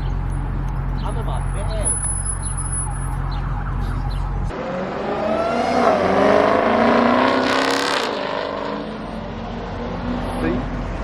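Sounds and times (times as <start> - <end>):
motorcycle revving past: 4.5 - 9.0.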